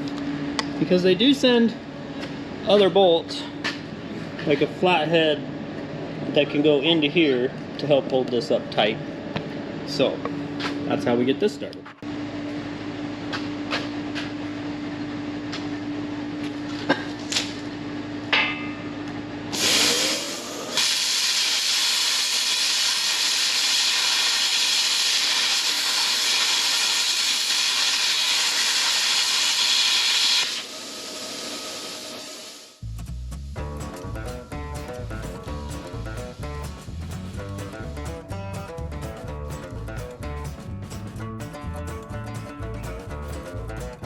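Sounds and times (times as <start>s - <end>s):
loud steady hiss: 19.5s - 32.8s.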